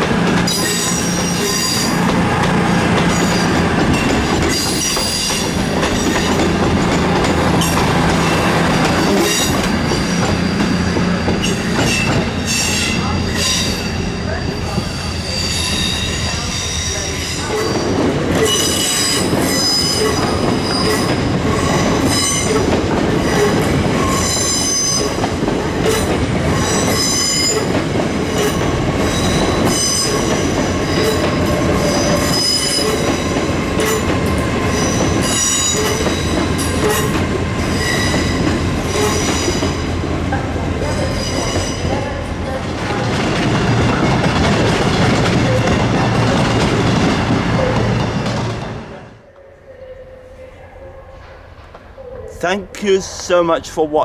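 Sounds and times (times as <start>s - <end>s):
train rumble: 0.0s - 54.0s
train wheels squealing: 0.5s - 2.0s, 9.1s - 22.6s, 34.7s - 37.1s, 37.7s - 39.8s.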